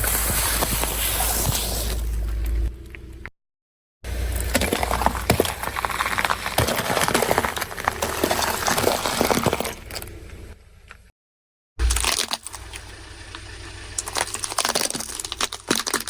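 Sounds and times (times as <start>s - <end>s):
objects crunching under car tyre: 0.0s - 3.3s, 4.0s - 11.1s, 11.8s - 16.0s.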